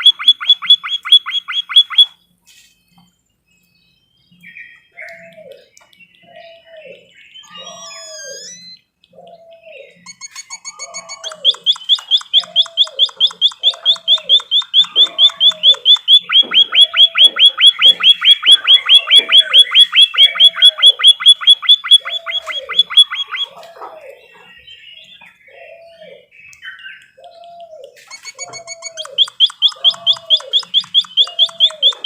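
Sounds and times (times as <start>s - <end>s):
fast high bird chirps: 0.0s - 2.2s, 7.3s - 8.9s, 10.0s - 23.6s, 28.0s - 32.0s
lower hooked bird call: 0.0s - 2.2s, 6.3s - 24.1s, 25.7s - 32.0s.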